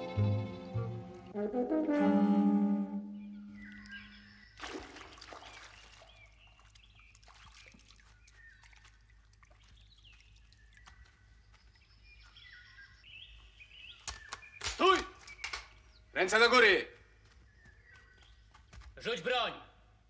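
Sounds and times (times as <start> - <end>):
brass note: 0.8 - 3.4
small birds chirping: 3.1 - 20.0.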